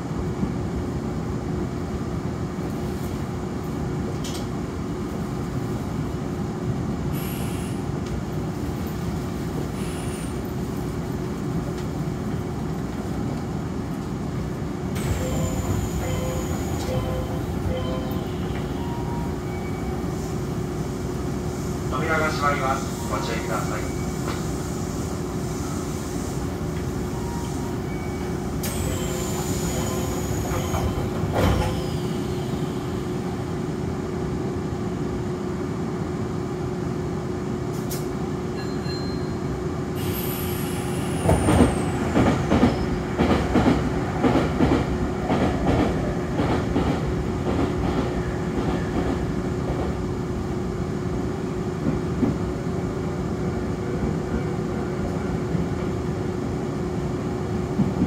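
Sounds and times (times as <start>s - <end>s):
train rumbling with hum: 0.0s - 58.0s.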